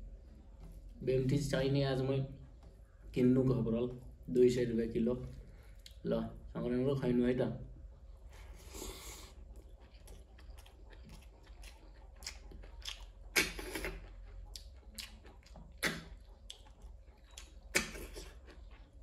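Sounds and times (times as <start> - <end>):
chewing food: 7.9 - 19.0
mouth clicks: 12.2 - 14.0, 14.6 - 16.7, 17.3 - 18.4.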